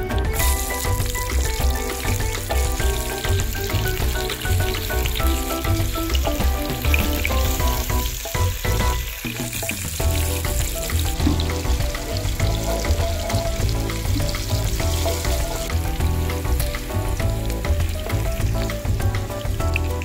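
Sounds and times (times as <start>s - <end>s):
background music with bass: 0.0s - 20.0s
onions sizzling in oil: 0.0s - 20.0s.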